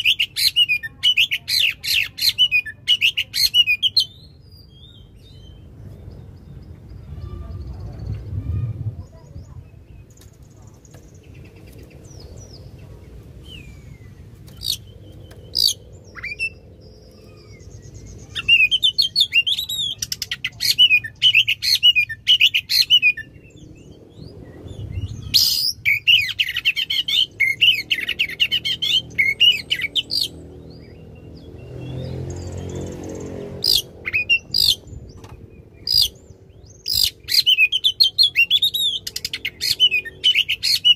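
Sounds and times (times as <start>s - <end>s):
bird singing loud varied phrases: 0.0s - 40.9s.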